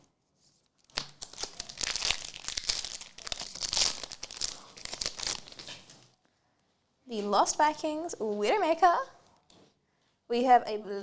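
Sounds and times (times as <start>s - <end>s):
foil wrapper crinkling and tearing: 0.7s - 6.0s.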